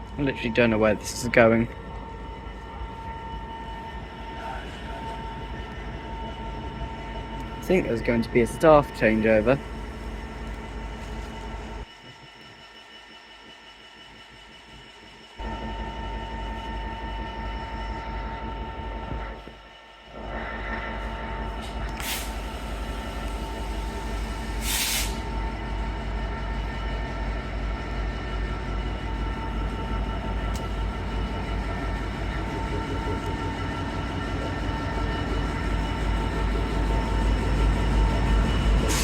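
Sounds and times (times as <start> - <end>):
diesel locomotive engine droning: 0.0 - 39.0
air hissing: 22.0 - 25.4, 38.7 - 39.0.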